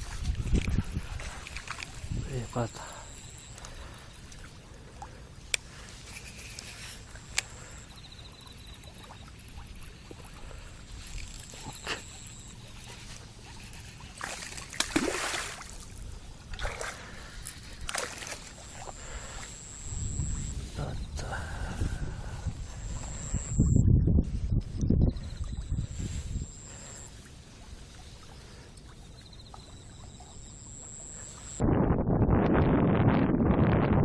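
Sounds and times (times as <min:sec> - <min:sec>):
water sloshing and splashing: 0:00.0 - 0:20.0, 0:25.4 - 0:31.2
sharp clicks: 0:05.4 - 0:08.0.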